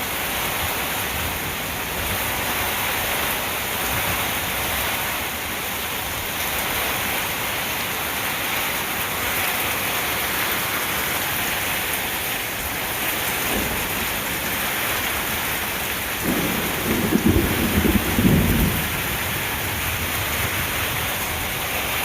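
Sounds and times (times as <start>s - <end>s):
heavy rain pouring: 0.0s - 22.0s
low rumble of thunder: 12.9s - 22.0s.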